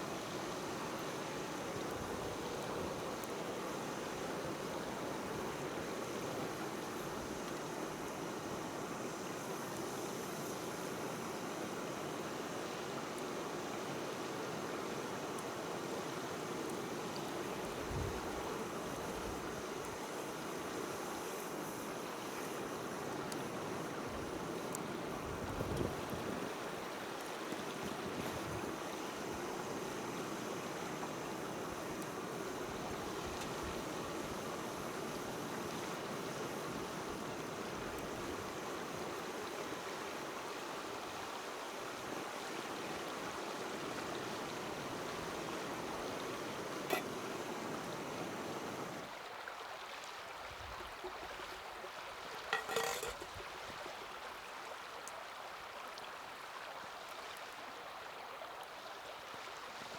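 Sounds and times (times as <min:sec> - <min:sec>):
wood fire hissing: 0:00.4 - 0:39.6, 0:44.5 - 0:49.0.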